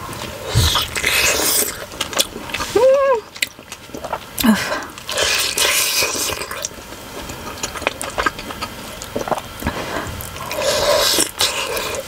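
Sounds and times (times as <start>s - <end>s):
wet chewing: 0.1s - 12.0s
breathy slurp: 9.2s - 12.0s.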